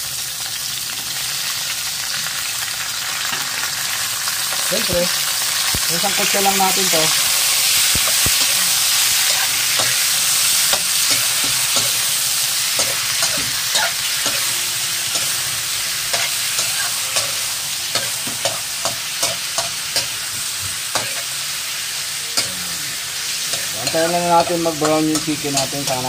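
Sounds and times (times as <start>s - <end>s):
chicken sizzling in hot oil: 0.0s - 26.0s
metal spatula scraping a wok: 7.1s - 21.4s, 22.2s - 26.0s.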